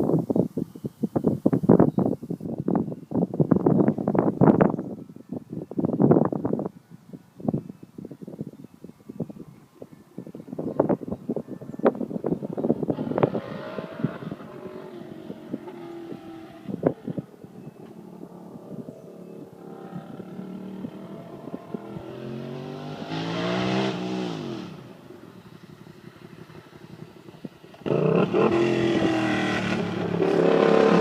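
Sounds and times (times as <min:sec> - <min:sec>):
motorcycle engine idling and revving: 0:11.8 - 0:31.0.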